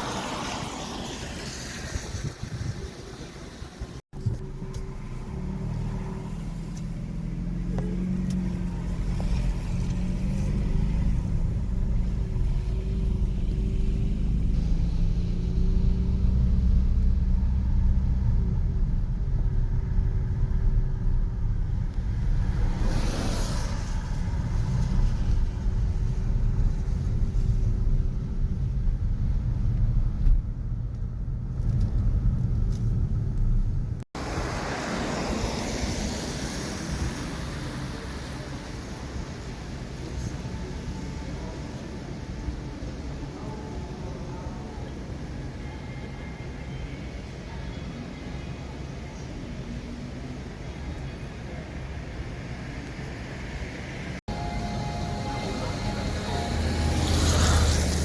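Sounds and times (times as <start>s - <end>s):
traffic rumble: 0.0s - 58.0s
vehicle passing close: 54.3s - 58.0s.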